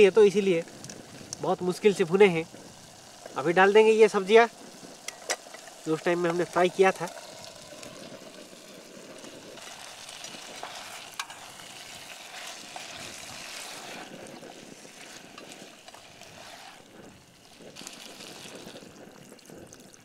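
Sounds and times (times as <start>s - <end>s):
vegetables sizzling in a pan: 0.0s - 20.0s.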